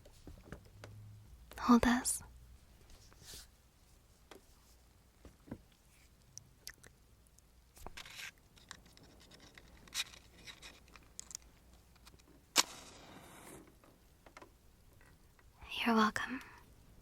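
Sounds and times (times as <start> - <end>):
objects clicking and rustling: 7.8 - 13.6
match striking and hissing: 12.6 - 13.6.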